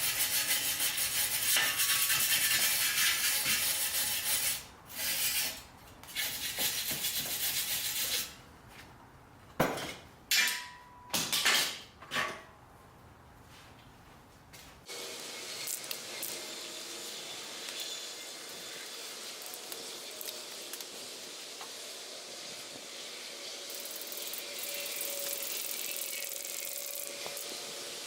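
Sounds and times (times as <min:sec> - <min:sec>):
scraping strokes on metal: 0:00.0 - 0:08.4, 0:15.7 - 0:28.0.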